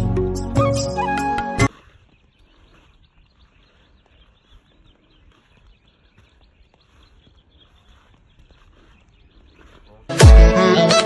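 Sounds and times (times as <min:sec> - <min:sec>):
outdoor background noise: 0:01.6 - 0:10.1
small bird chirps: 0:01.7 - 0:10.1.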